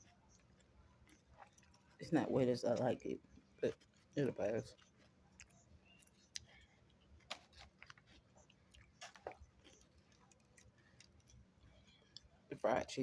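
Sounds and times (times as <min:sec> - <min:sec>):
chewing food: 0:00.0 - 0:12.6.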